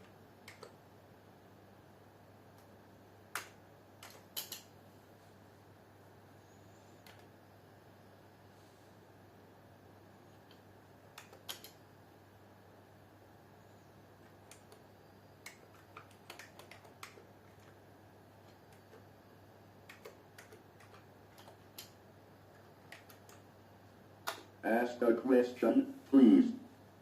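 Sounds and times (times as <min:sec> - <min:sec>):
faint low hum: 0:00.0 - 0:27.0
computer keyboard keystrokes: 0:00.4 - 0:00.8, 0:03.3 - 0:04.7, 0:10.5 - 0:11.8, 0:14.3 - 0:14.8, 0:15.4 - 0:17.8, 0:19.8 - 0:22.0, 0:22.9 - 0:23.4.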